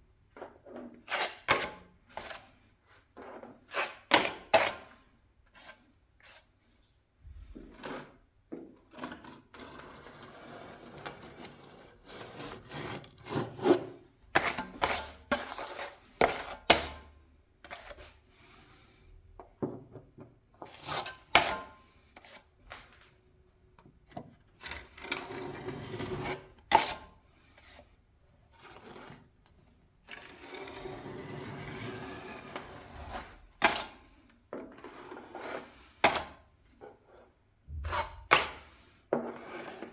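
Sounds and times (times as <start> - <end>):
scraping or rubbing: 9.0 - 18.2, 30.1 - 39.9.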